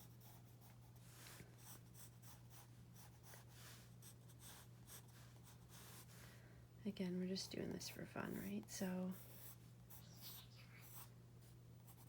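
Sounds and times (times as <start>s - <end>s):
low steady hum: 0.0s - 12.0s
pencil scratching on paper: 1.6s - 6.1s, 8.3s - 11.1s.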